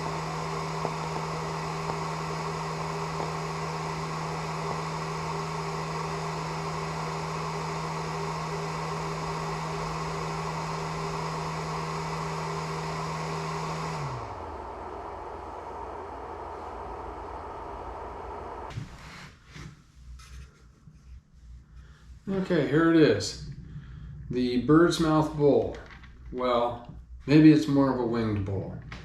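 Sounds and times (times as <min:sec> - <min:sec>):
woodshop machine motor humming: 0:00.0 - 0:19.3.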